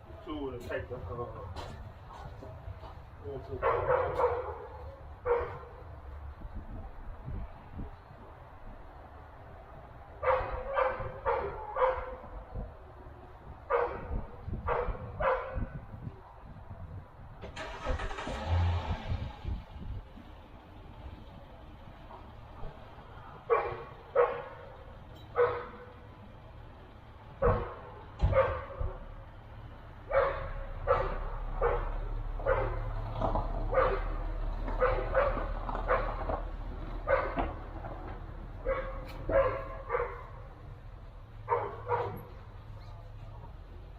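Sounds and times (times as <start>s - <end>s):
dog barking: 3.6s - 5.8s, 10.2s - 12.4s, 13.7s - 15.8s, 23.5s - 26.0s, 27.4s - 29.0s, 30.1s - 32.9s, 33.7s - 34.2s, 34.8s - 36.2s, 37.0s - 37.5s, 38.6s - 40.4s, 41.5s - 42.3s.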